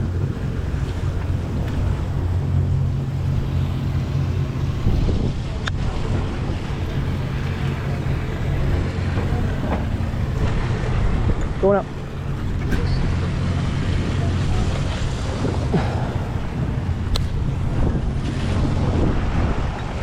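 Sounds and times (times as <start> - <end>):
boat engine drone: 0.0 - 20.0
water noise: 0.0 - 20.0
wind: 0.0 - 20.0
sharp click: 17.1 - 17.4.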